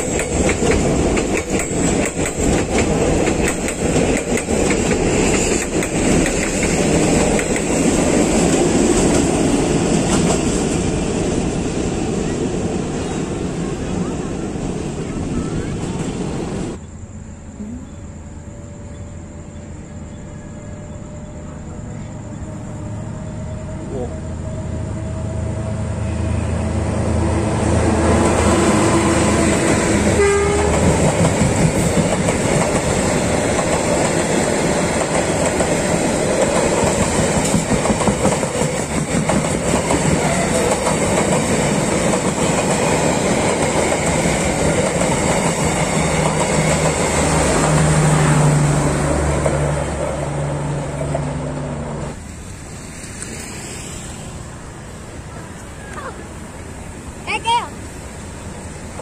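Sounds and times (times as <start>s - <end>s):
wheel clatter over rail joints: 0.0s - 10.9s
passenger train passing: 0.0s - 59.0s.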